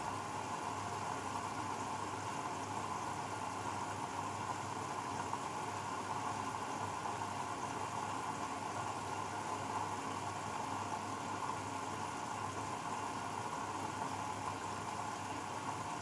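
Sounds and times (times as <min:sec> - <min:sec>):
washing machine whirring: 0:00.0 - 0:16.0.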